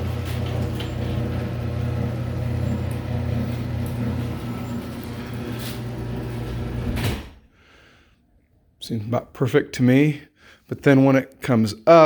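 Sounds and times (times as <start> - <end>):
garage door opener motor hum: 0.0 - 7.4.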